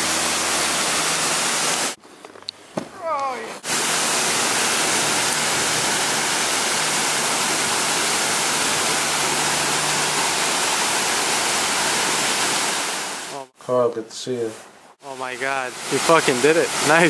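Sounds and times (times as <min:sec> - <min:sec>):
waterfall rushing: 0:03.0 - 0:13.5, 0:15.1 - 0:17.0.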